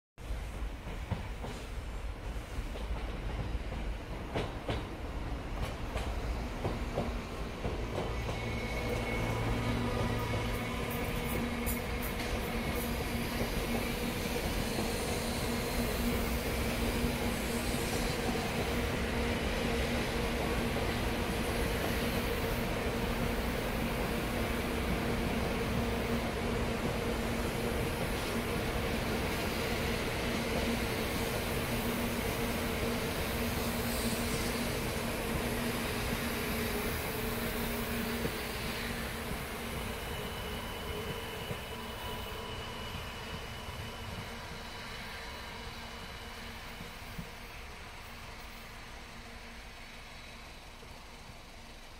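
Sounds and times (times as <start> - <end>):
train wheels rumbling on rail: 0.2 - 51.9.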